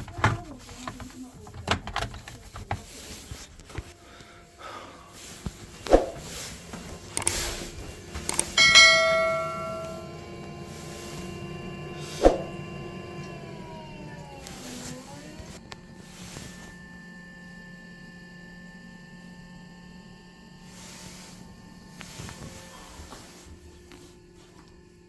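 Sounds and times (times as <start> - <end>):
metal object ringing like a bell: 8.6 - 10.4.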